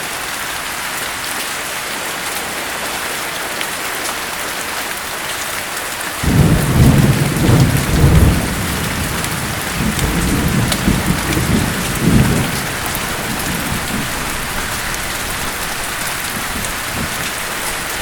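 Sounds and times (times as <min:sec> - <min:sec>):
heavy rain falling: 0:00.0 - 0:18.0
rolling thunder rumble: 0:06.2 - 0:18.0.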